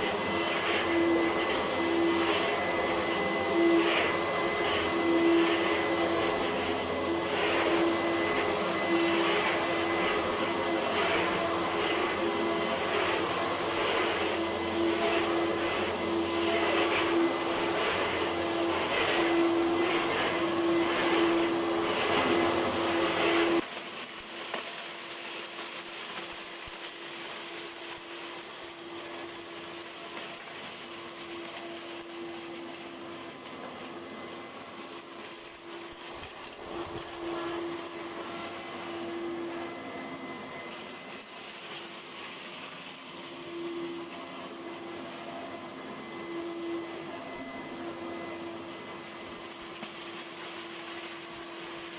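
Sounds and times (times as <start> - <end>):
vacuum cleaner motor whine: 0.0 - 51.9.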